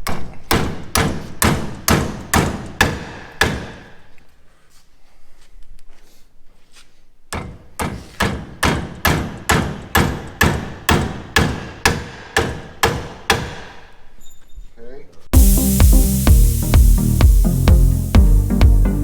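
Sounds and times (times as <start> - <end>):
hammering on metal: 7.3 - 13.7.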